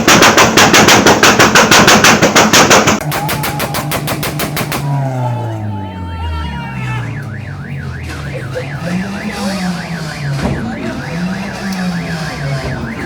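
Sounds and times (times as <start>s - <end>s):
car alarm siren warbling: 3.0s - 13.0s
low rising and falling tone: 4.7s - 13.0s
sharp bang: 7.1s - 13.0s.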